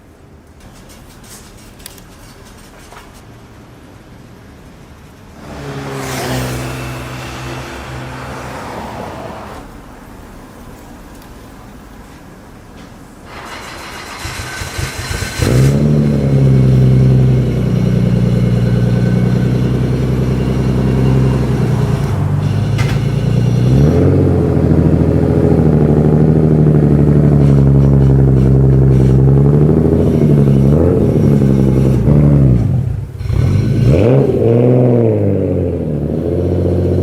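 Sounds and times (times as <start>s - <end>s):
car engine running: 14.7s - 34.4s.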